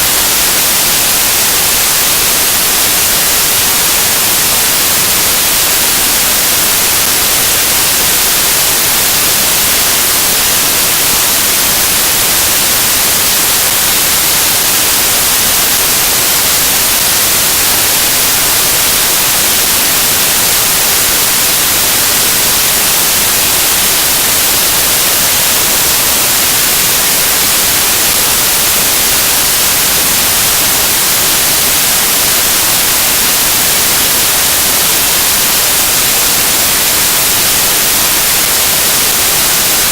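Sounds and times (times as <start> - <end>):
static hiss: 0.0 - 39.9.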